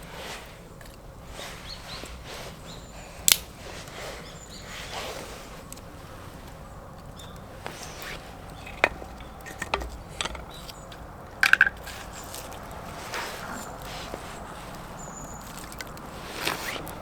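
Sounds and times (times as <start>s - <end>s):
sharp knocks and clicks: 8.7s - 10.8s.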